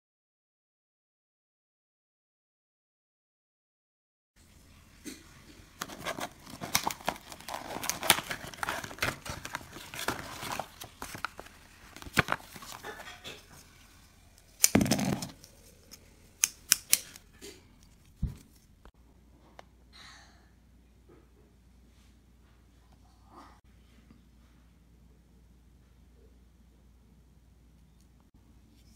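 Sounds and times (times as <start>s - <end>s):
plastic blister pack crinkling: 5.8s - 17.2s.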